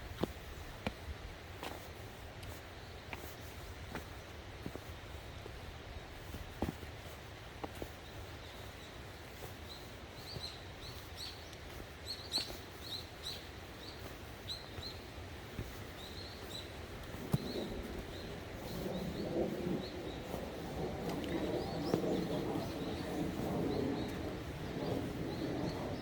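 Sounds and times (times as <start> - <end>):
outdoor background hiss: 0.0 - 26.0
small birds chirping: 7.8 - 26.0.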